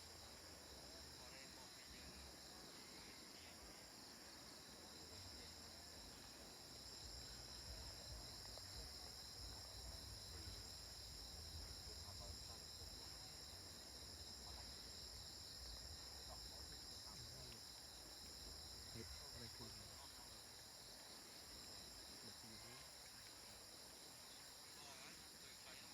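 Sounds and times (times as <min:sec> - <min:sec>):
faint insect chorus: 0:00.0 - 0:25.9.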